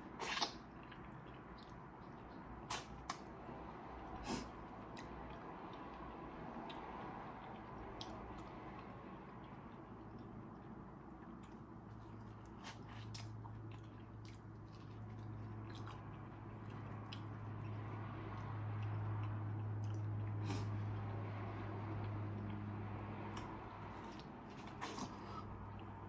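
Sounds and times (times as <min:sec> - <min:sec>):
chewing corn: 0:00.0 - 0:03.3, 0:04.3 - 0:21.2, 0:21.9 - 0:26.0
wet mouth clicks and squishes: 0:00.0 - 0:03.3.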